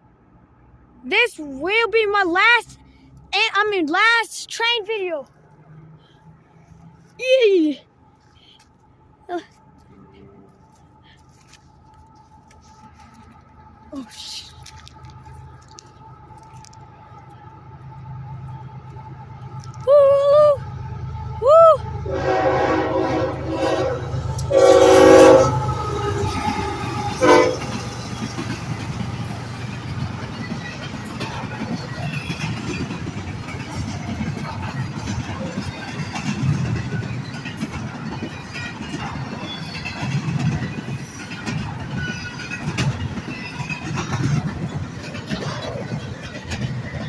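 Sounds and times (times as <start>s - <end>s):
passing train rumble: 0.0s - 47.0s
wheels squealing on rail: 17.3s - 47.0s
train horn blasts: 21.0s - 27.8s
wheels clacking over track: 22.5s - 47.0s.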